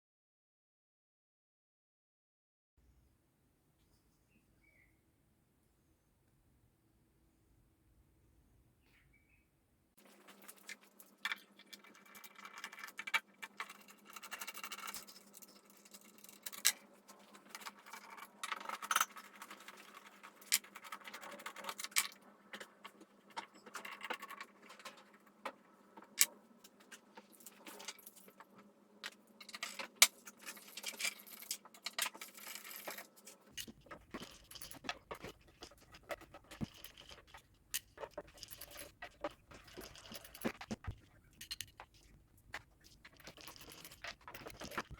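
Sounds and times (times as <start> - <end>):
light scrapes and rattles: 10.0 - 44.9
small hard objects clicking: 29.1 - 44.9.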